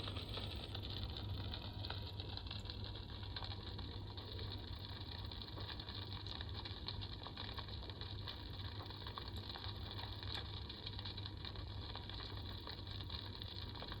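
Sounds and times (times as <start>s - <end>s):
humidifier humming: 0.0s - 6.5s
faint crackle: 0.0s - 14.0s.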